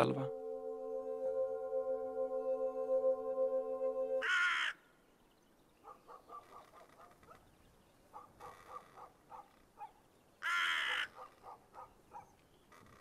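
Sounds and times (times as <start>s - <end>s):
crow cawing: 4.2s - 4.8s, 10.4s - 11.2s.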